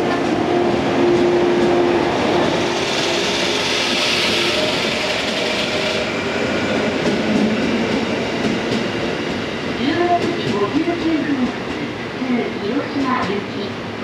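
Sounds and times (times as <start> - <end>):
electric train running slowly: 0.0 - 14.0
rushing hiss: 2.3 - 6.9.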